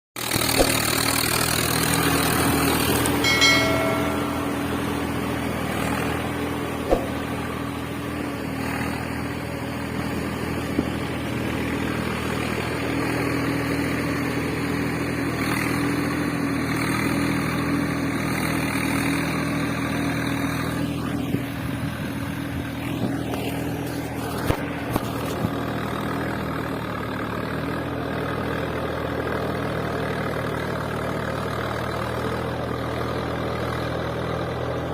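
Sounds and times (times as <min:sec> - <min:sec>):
short beeping tone: 0:03.2 - 0:05.2.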